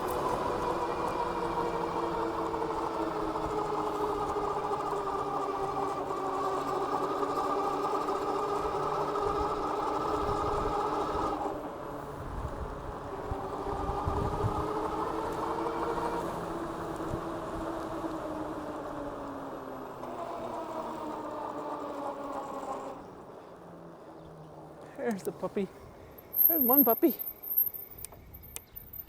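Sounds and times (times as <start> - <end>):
electric motor whining: 0.0 - 24.2
wind on microphone: 12.2 - 14.8.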